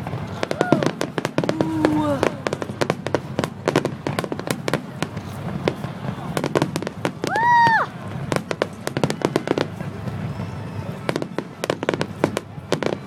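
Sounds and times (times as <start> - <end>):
fireworks bangs and pops: 0.0 - 13.0.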